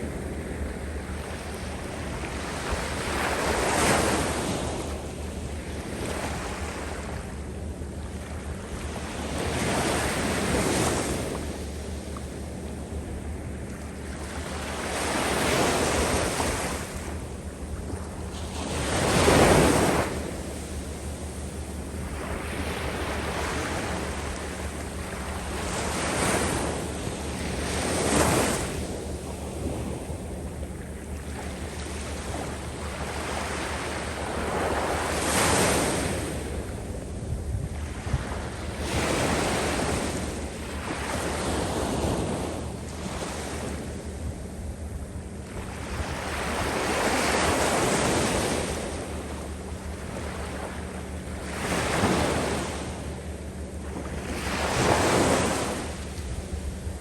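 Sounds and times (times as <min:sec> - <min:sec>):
wind rumbling on microphone: 0:00.0 - 0:57.0
surf washing over sand: 0:14.1 - 0:44.2.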